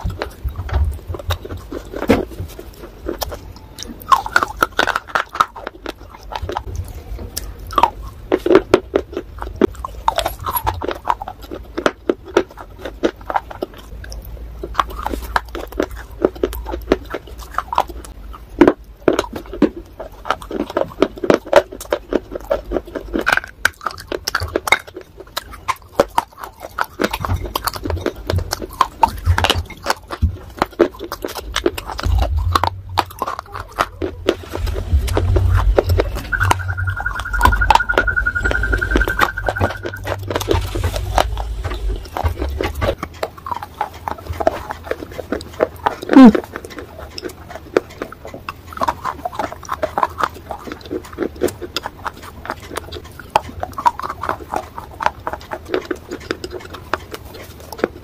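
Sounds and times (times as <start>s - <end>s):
person chewing crunchy clay: 0.0s - 58.0s.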